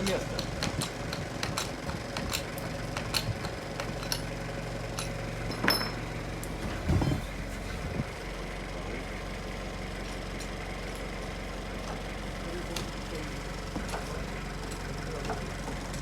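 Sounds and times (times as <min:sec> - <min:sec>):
engine idling: 0:00.0 - 0:16.0
metal tools clinking on steel: 0:00.1 - 0:04.3, 0:04.9 - 0:06.1.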